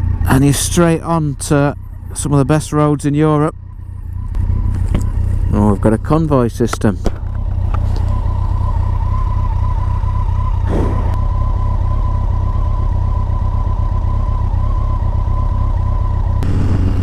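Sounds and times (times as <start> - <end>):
motorcycle engine cruising: 0.0 - 17.0
falling whoosh: 10.6 - 11.2.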